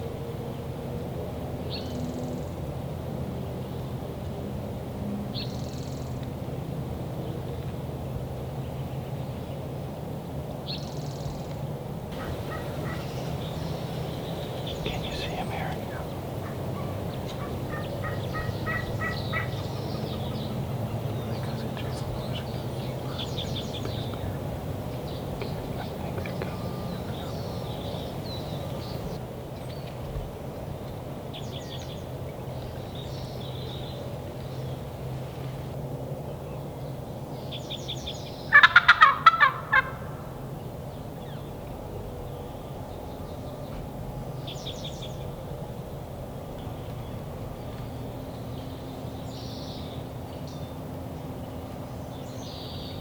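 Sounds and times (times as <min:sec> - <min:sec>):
steady low rumble: 0:12.1 - 0:29.2
songbird trilling: 0:12.2 - 0:29.2
wild turkey yelping: 0:12.2 - 0:29.2, 0:38.5 - 0:40.4.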